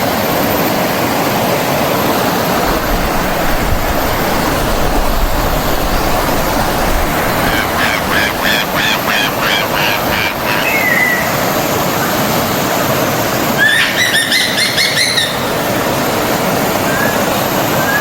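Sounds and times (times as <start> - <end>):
stream flowing: 0.0 - 18.0
birds chirping: 3.4 - 12.2, 13.5 - 18.0.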